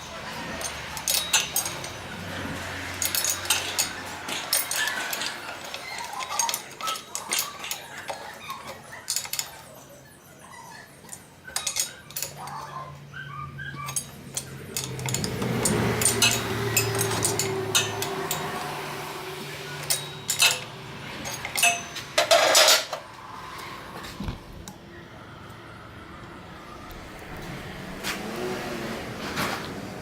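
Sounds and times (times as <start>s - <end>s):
metallic clicks of tools: 0.4s - 9.6s, 11.0s - 12.8s, 13.8s - 23.7s.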